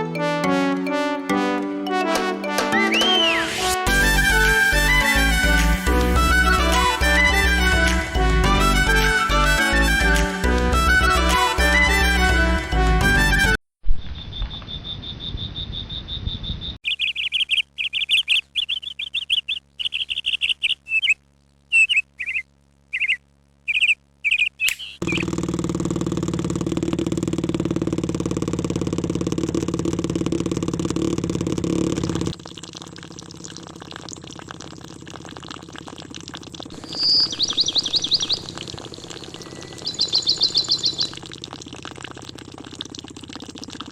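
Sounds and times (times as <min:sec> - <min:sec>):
high whistle-like tone: 0:02.7 - 0:03.7, 0:36.8 - 0:38.4
rapid bird-like chirps: 0:14.0 - 0:25.3, 0:36.8 - 0:41.2
steady hum: 0:32.0 - 0:43.8.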